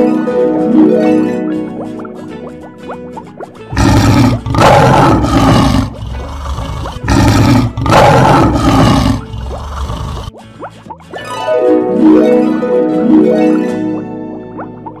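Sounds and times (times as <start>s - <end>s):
lion roar: 3.7s - 10.3s.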